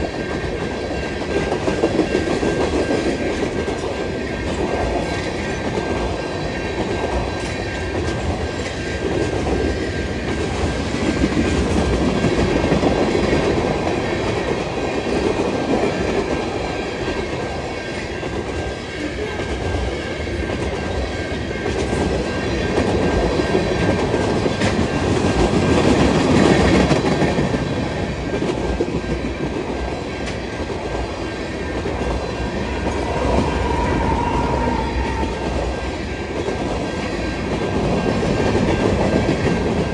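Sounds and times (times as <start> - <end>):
freight train rumbling past: 0.0 - 39.9
wheels clicking over rail joints: 21.4 - 35.7.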